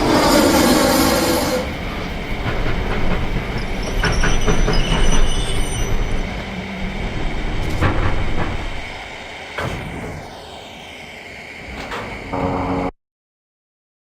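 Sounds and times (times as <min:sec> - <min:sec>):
high wheel squeal: 0:00.0 - 0:07.0
train cars rumbling past: 0:00.0 - 0:09.6
wheels knocking over rail joints: 0:01.5 - 0:05.3.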